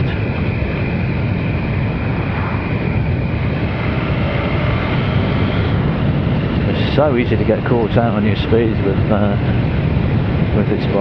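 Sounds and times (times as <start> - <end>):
motorcycle engine cruising: 0.0 - 10.5
wind rush: 0.0 - 11.0.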